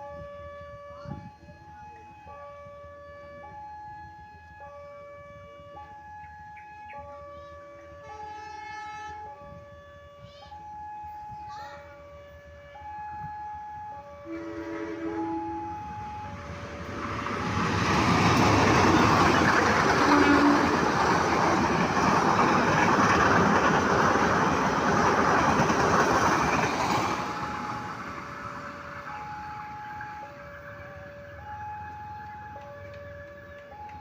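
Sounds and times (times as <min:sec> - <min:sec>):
level crossing alarm: 0:00.0 - 0:24.6, 0:25.2 - 0:34.0
train wheels on rails: 0:14.3 - 0:34.0.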